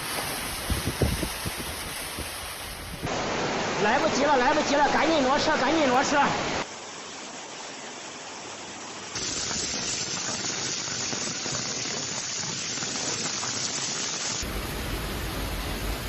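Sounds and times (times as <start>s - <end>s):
rushing floodwater: 0.0s - 9.8s.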